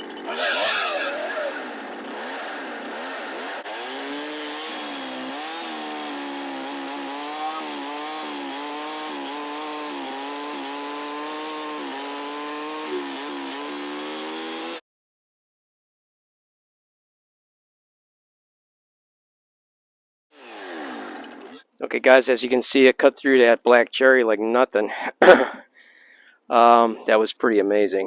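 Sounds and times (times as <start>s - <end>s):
chainsaw cutting log: 0.0s - 14.8s, 20.4s - 21.8s.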